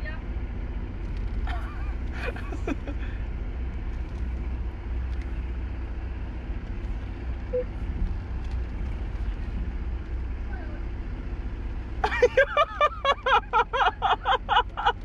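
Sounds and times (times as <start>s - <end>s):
car engine rumble inside cabin: 0.0s - 15.0s.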